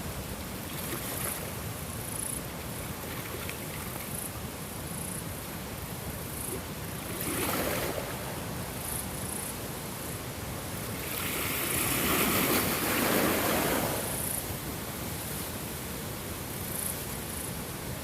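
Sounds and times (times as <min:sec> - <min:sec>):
ocean waves washing in: 0:06.4 - 0:09.0, 0:10.8 - 0:15.4.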